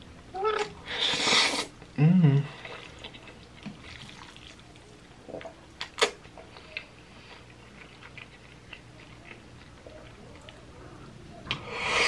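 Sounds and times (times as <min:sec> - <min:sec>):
chewing noodles with mouth smacks: 0:02.5 - 0:10.7.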